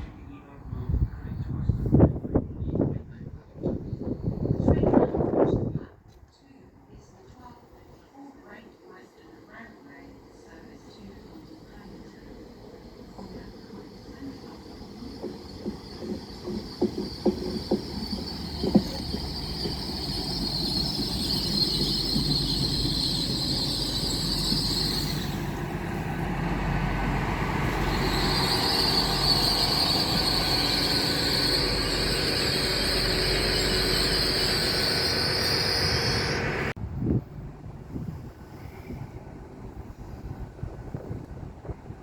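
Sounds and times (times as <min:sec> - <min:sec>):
train rumbling past: 0:06.8 - 0:42.0
high wheel squeal: 0:13.2 - 0:25.6, 0:27.5 - 0:36.7
wheels clicking over rail joints: 0:14.8 - 0:23.5.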